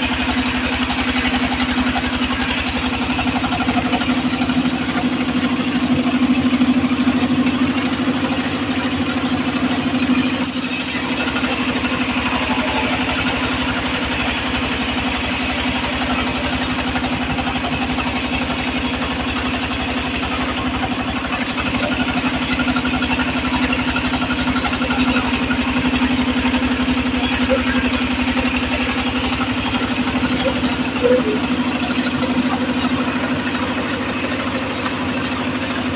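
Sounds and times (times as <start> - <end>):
circular saw engine running: 0.0 - 35.9.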